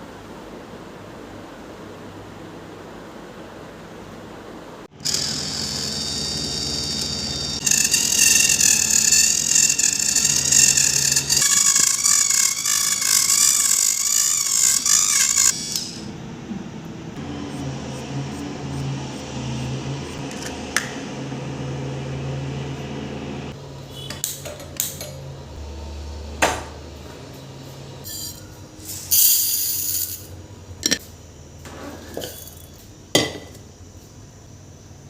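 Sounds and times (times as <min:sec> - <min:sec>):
steady low hum: 0:00.0 - 0:24.0, 0:25.0 - 0:35.0
dishes and utensils clinking: 0:31.9 - 0:33.6.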